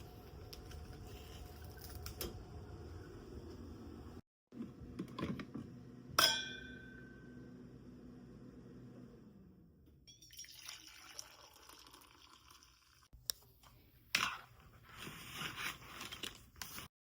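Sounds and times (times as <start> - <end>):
sharp ringing clink: 6.2 - 7.4.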